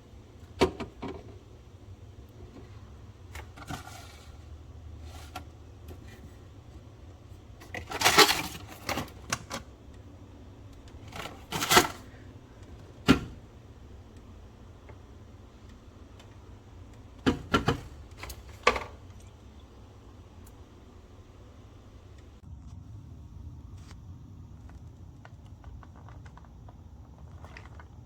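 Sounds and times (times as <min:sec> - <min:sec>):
food packages being handled: 0:07.6 - 0:09.7, 0:10.8 - 0:12.2.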